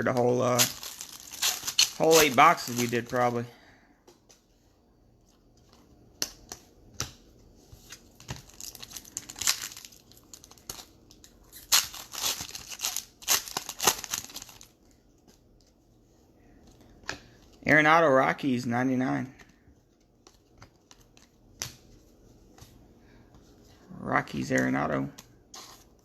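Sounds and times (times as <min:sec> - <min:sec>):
foil wrapper ripping and crinkling: 0:00.5 - 0:03.4, 0:08.4 - 0:14.7.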